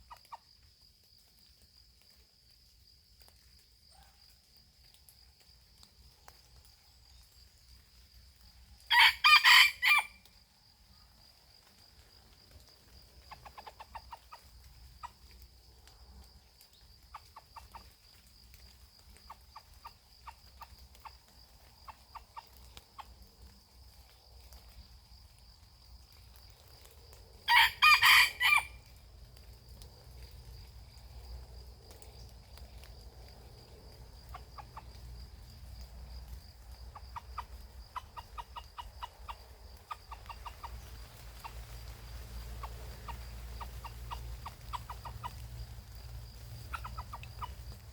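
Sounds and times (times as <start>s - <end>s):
rooster crowing: 8.9s - 10.2s, 27.5s - 28.8s
soft clucking: 13.3s - 15.4s, 36.9s - 47.9s.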